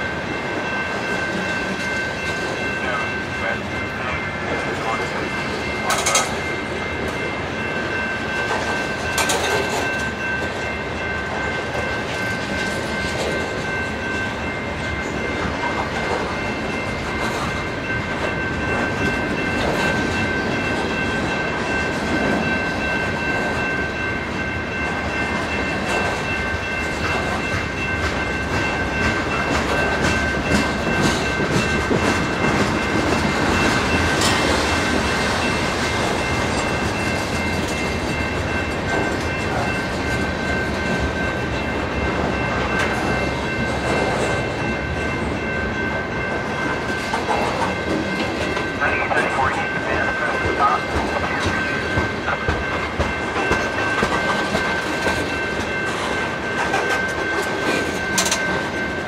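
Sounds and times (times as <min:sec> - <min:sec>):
train wheels clicking over rail joints: 0:05.8 - 0:06.4, 0:08.4 - 0:10.6, 0:50.4 - 0:58.8.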